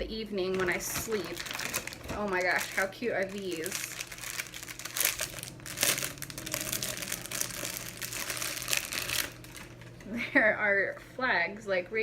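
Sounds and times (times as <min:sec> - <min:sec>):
plastic packaging crinkling: 0:00.5 - 0:10.1.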